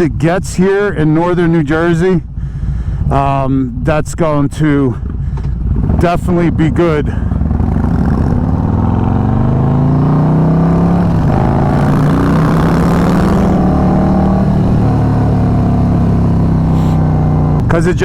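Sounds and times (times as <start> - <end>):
motorcycle engine under throttle: 5.0 - 18.0.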